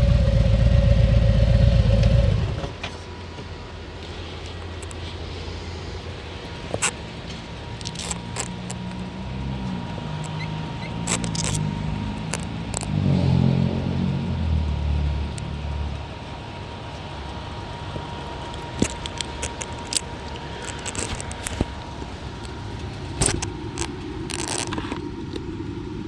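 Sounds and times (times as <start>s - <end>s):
motorcycle engine running: 0.0s - 2.8s
sharp clicks: 7.8s - 9.0s, 10.2s - 12.9s, 18.5s - 21.8s.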